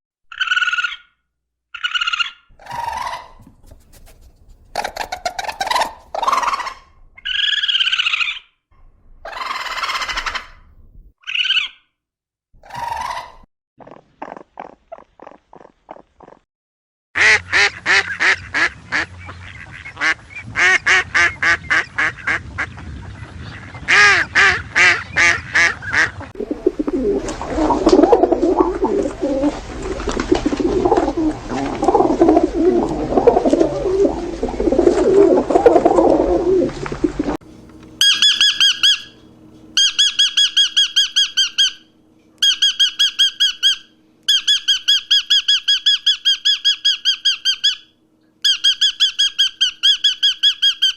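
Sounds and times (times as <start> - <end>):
birds calling: 2.6 - 8.4, 18.0 - 50.9
rapid high-pitched bird notes: 38.0 - 39.2, 39.8 - 47.8.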